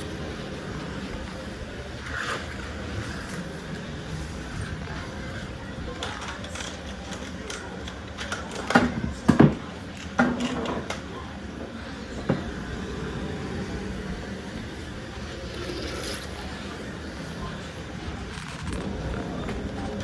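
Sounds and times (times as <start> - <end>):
steady room hum: 0.0 - 20.0
plastic toys knocking and clattering: 5.9 - 11.0.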